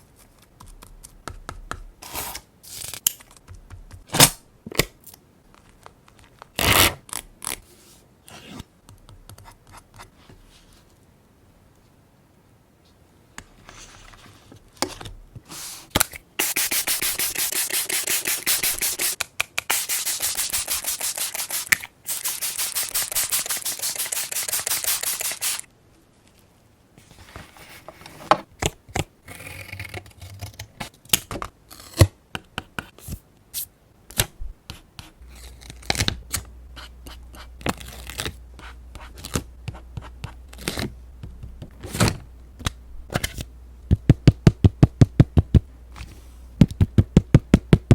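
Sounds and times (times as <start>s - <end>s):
rubbing strokes on paper: 15.5s - 25.7s.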